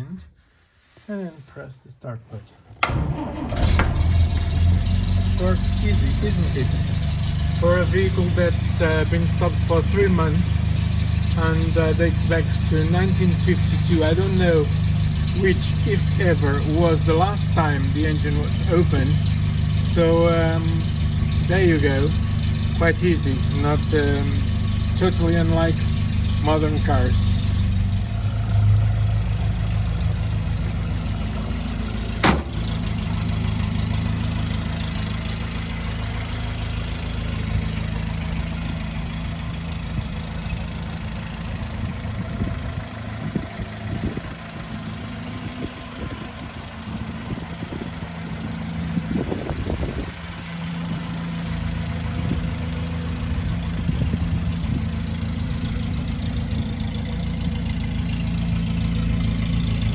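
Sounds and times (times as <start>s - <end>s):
petrol engine idling: 2.7s - 59.9s
sharp click: 32.2s - 32.8s.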